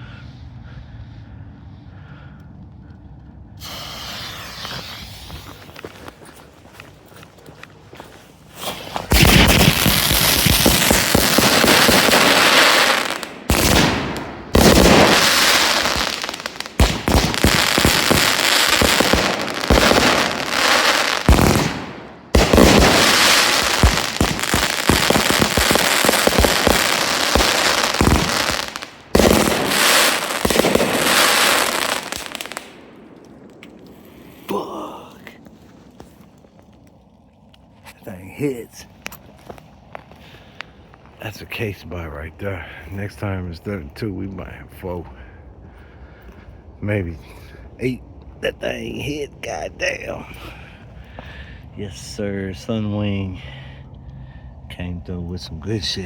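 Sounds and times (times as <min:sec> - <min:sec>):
fireworks crackling and popping: 0:03.6 - 0:06.4, 0:08.4 - 0:37.0.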